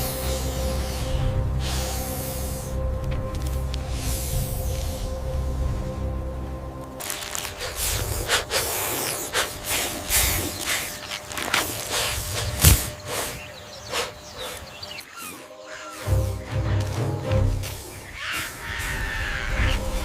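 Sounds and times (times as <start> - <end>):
animals scuffling and fighting: 6.9 - 20.0.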